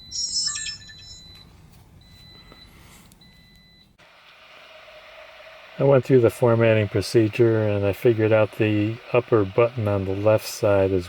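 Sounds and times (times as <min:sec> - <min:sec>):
electronic chirp: 0:00.0 - 0:01.4
high electronic beeping tone: 0:00.0 - 0:01.4.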